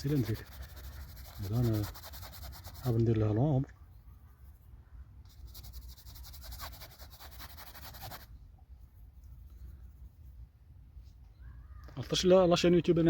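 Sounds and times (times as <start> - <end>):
paintbrush scrubbing: 0.0 - 3.2, 5.3 - 8.3.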